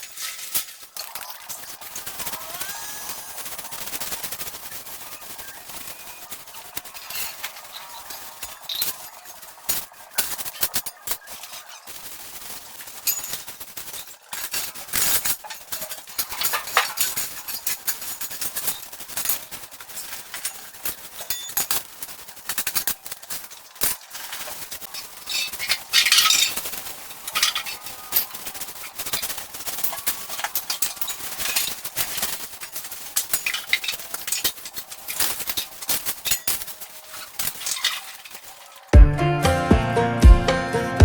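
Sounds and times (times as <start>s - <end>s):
small hard objects clinking: 0.0s - 39.0s.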